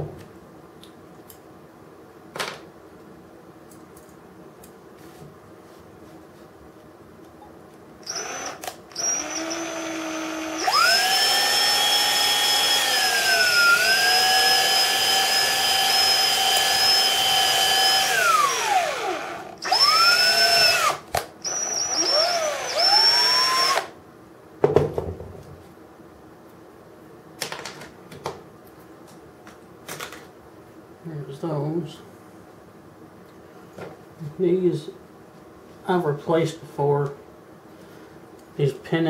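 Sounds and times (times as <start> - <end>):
small power drill whining: 8.0 - 24.0.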